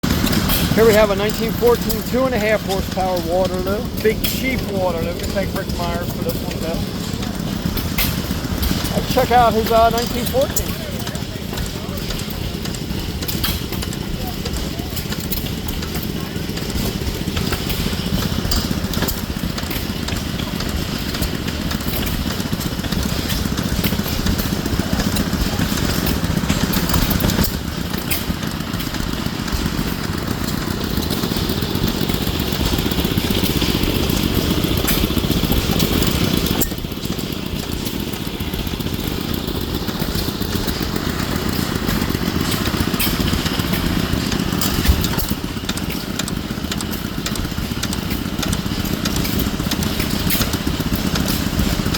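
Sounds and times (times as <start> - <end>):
stationary engine running: 0.0 - 51.9
clicks and knocks of running gear: 11.5 - 51.9.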